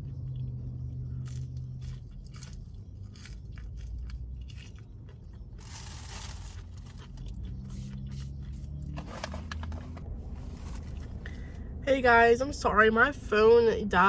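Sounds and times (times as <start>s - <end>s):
chewing crispy fried food: 0.0s - 9.3s.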